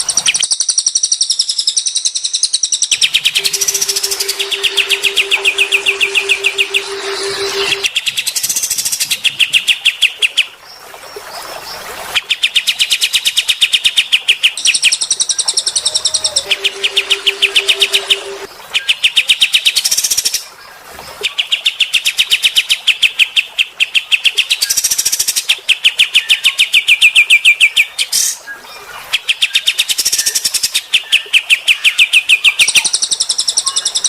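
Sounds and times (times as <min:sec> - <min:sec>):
songbird singing fast trills: 0:00.2 - 0:10.2.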